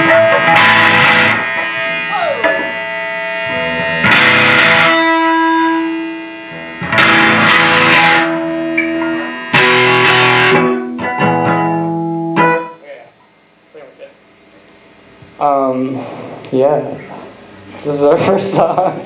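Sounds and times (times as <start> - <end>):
picked guitar notes: 0.0 - 13.3
distorted electric guitar chords: 0.0 - 19.0.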